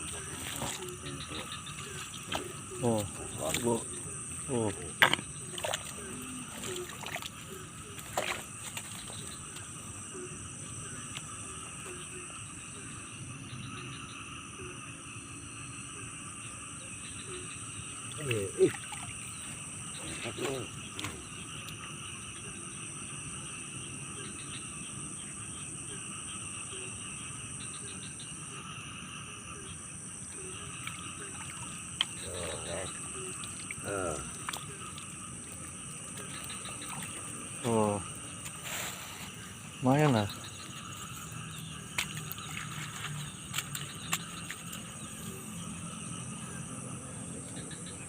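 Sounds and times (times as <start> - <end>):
flowing ditch water: 0.0 - 12.0, 17.9 - 22.2, 30.3 - 47.3
high-pitched insect chorus: 0.0 - 48.0.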